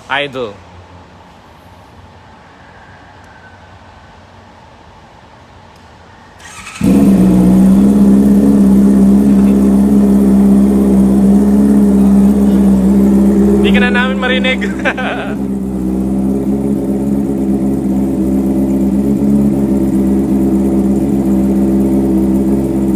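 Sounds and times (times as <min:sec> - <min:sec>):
motorcycle engine cranking: 0:06.4 - 0:22.9
motorcycle engine idling loud: 0:06.4 - 0:22.9.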